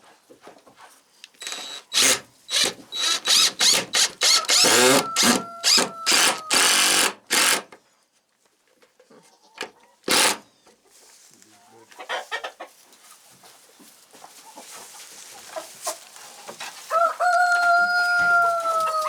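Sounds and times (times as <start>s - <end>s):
power drill bursts: 1.4s - 7.7s, 10.1s - 10.4s.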